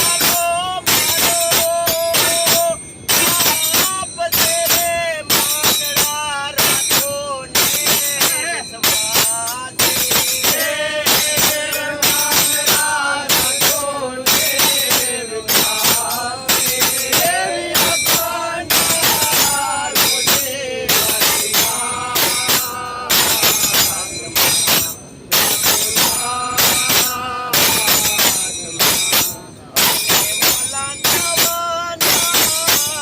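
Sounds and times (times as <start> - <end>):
group of voices singing: 0.0 - 29.4
hand percussion beat: 0.0 - 33.0.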